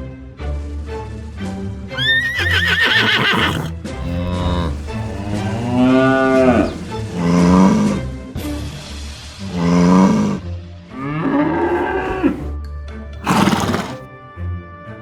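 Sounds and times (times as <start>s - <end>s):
background music: 2.0s - 8.1s
horse whinny: 2.0s - 8.1s, 9.5s - 12.6s, 13.2s - 14.0s
low animal call: 2.0s - 8.1s, 9.5s - 12.5s, 13.2s - 14.0s.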